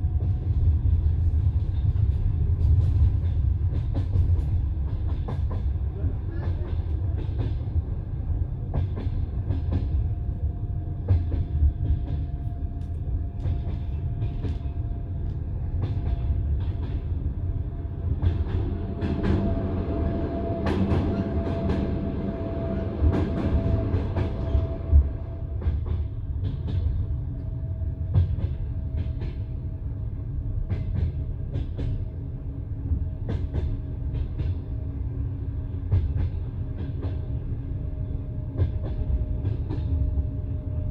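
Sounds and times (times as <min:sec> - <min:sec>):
low rumble of train: 0:00.0 - 0:40.9
train wheels clicking over rail joints: 0:01.5 - 0:07.9, 0:08.6 - 0:10.2, 0:11.0 - 0:17.4, 0:18.0 - 0:29.7, 0:30.6 - 0:32.1, 0:33.2 - 0:34.8, 0:38.4 - 0:40.4.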